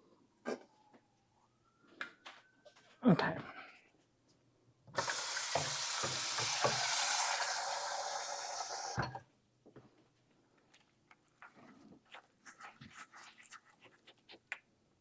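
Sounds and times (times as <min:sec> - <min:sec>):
water running from kitchen tap: 0:05.0 - 0:09.2.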